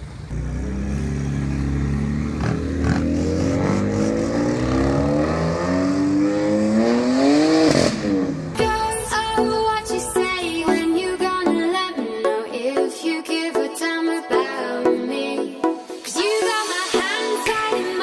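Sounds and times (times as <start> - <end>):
sports car engine accelerating: 0.0 - 8.6
music: 8.6 - 18.0.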